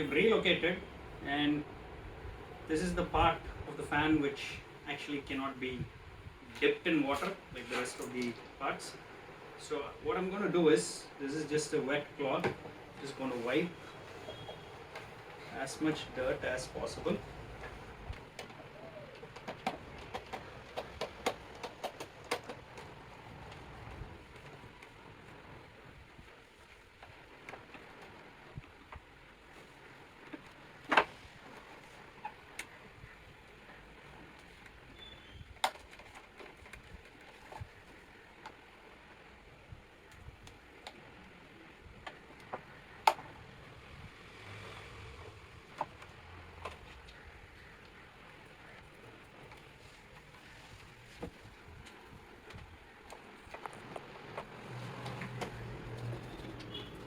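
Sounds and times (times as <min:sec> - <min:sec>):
plastic fan housing clicking: 0:35.6 - 0:37.7.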